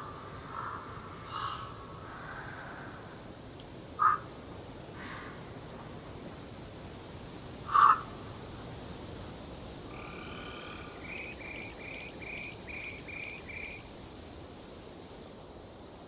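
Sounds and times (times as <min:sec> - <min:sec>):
steady outdoor hiss: 0:00.0 - 0:16.0
animal call with repeated notes: 0:04.0 - 0:04.2, 0:07.7 - 0:08.0.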